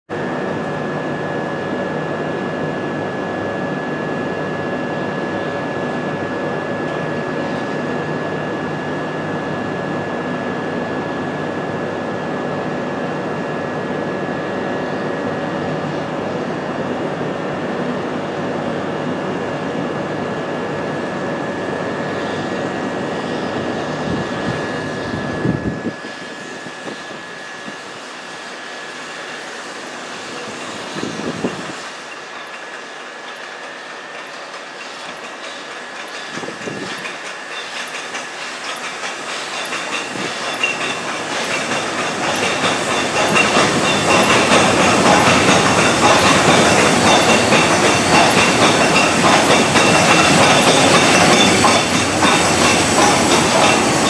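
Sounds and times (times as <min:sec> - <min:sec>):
train hissing roar: 0:39.2 - 0:54.0.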